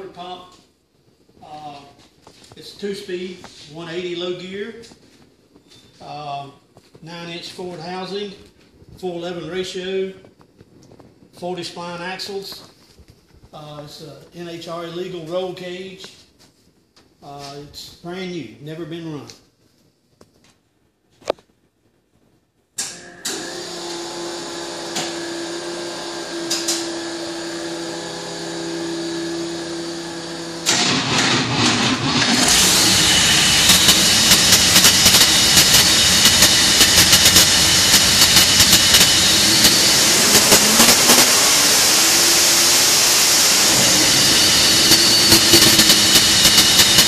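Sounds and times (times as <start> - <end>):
engines running loud and crackly: 28.9 - 47.0
sharp exhaust pops: 30.6 - 41.4.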